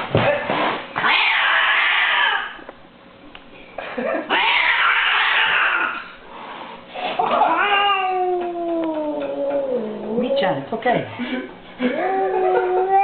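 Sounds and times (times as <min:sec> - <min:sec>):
cat hissing: 0:01.0 - 0:02.6, 0:04.3 - 0:08.3
cat yowling: 0:01.0 - 0:02.6, 0:04.3 - 0:06.0, 0:07.2 - 0:10.4.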